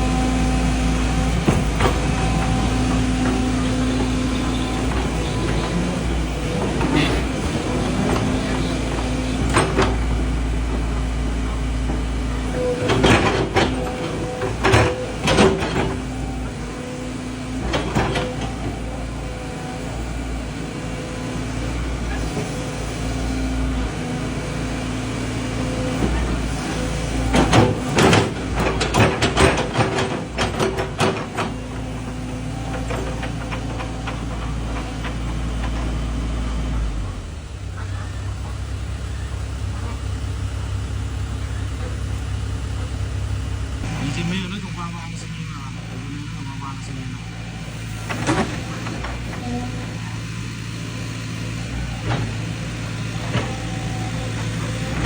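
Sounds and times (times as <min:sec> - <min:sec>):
excavator diesel engine running: 0:00.0 - 0:55.0
knocking and clatter: 0:12.7 - 0:16.2, 0:27.2 - 0:36.0.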